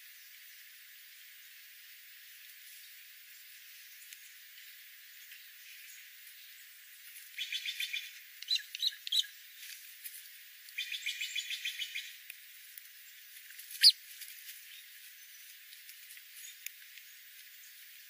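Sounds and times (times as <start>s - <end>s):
wild birds calling: 7.3s - 9.5s, 10.7s - 12.2s, 13.0s - 15.6s.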